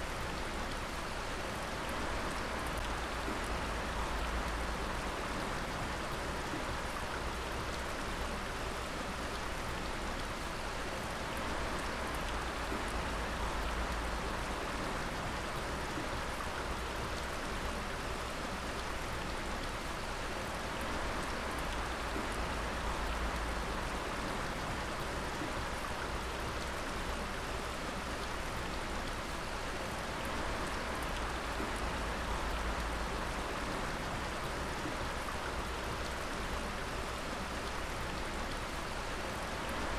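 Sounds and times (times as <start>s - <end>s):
water dripping and splashing: 11.3s - 39.9s.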